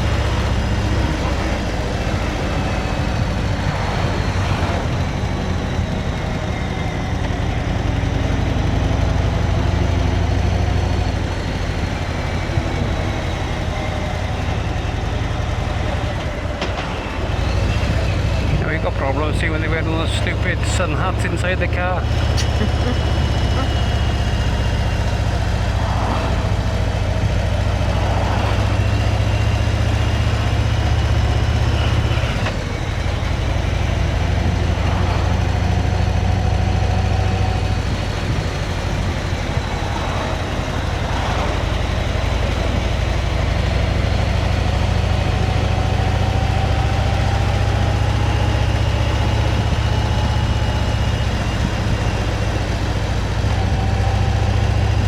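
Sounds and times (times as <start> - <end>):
wind noise: 0.0 - 18.7, 22.1 - 55.0
motorcycle engine running: 0.0 - 55.0
road noise: 0.0 - 55.0.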